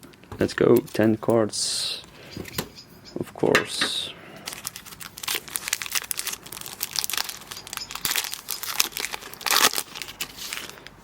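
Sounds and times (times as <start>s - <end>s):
foil wrapper crinkling and tearing: 4.4s - 11.0s.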